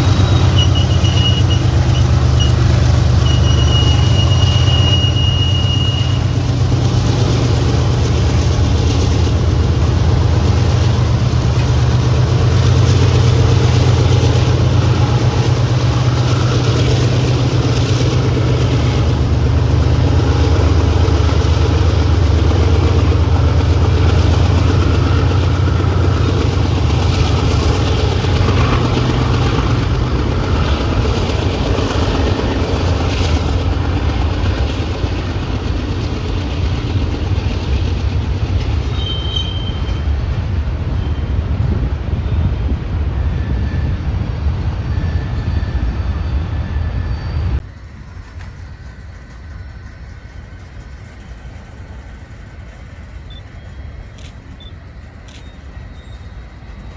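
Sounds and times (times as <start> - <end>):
diesel locomotive engines droning: 0.0 - 56.9
freight cars rolling: 0.0 - 56.9
thin high squeal: 53.3 - 56.9.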